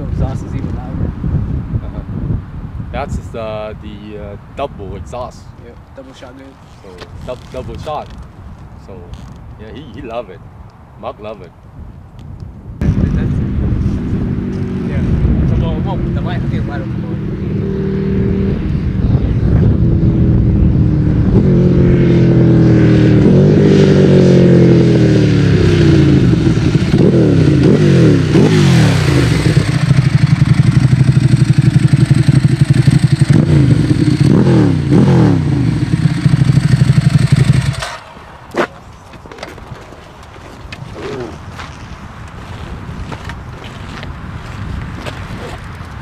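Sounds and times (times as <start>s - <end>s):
motorcycle engine revving: 12.8s - 38.7s
motorcycle engine lumpy pulse: 25.6s - 43.3s.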